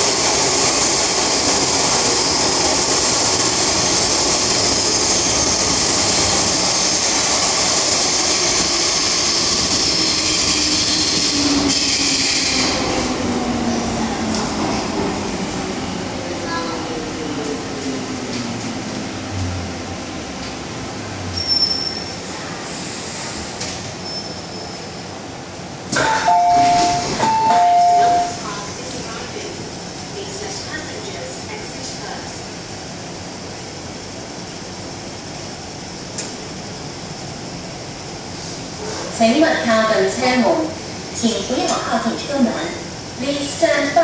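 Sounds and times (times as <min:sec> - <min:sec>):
train wheels rumbling on rail: 0:00.0 - 0:44.0
wheel squeals: 0:21.3 - 0:22.2.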